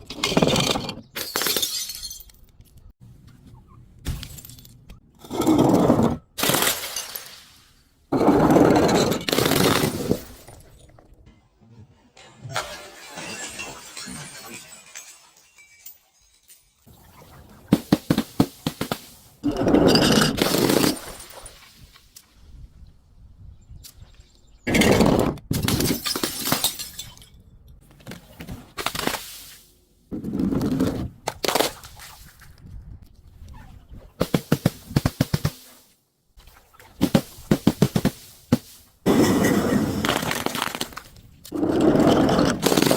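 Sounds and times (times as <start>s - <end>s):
glass bottles shattering: 0.3s - 2.4s, 6.4s - 7.7s, 8.4s - 10.9s, 12.4s - 17.0s, 19.4s - 21.9s, 25.6s - 27.4s, 39.1s - 42.9s
glass crackles: 12.5s - 17.2s.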